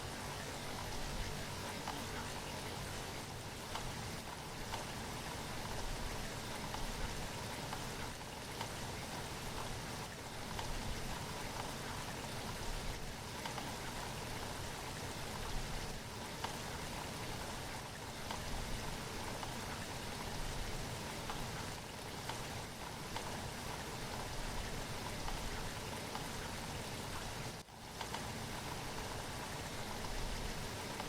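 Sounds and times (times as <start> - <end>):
rain falling: 0.0 - 31.0
raindrops ticking on a surface: 0.0 - 31.0.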